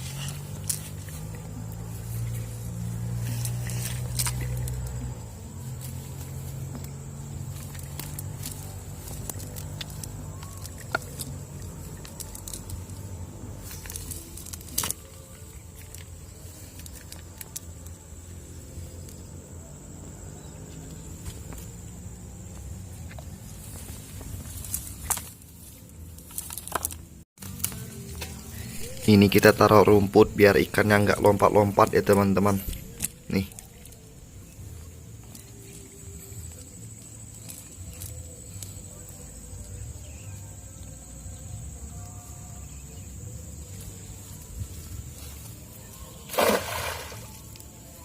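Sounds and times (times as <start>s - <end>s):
small clicks and rustles: 0.0s - 6.9s, 7.5s - 18.0s
engine humming: 0.0s - 48.0s.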